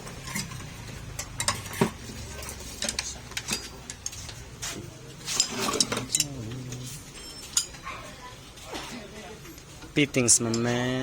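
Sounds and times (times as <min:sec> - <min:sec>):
metal tools clinking: 0:00.0 - 0:04.4, 0:05.2 - 0:08.0.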